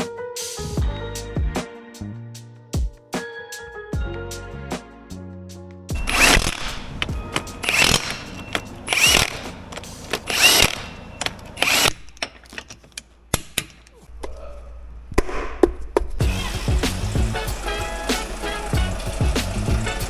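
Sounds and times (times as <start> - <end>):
power tool bursts: 6.0 - 15.5, 16.1 - 20.0
clicks and knocks: 6.0 - 16.3.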